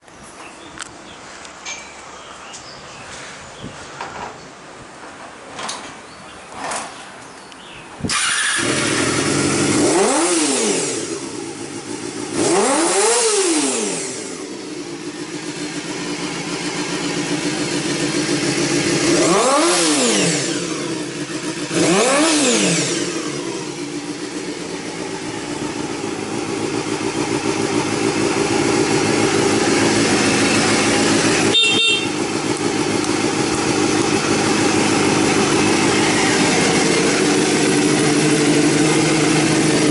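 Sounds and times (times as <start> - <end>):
motorcycle engine starting and revving: 8.0 - 39.9.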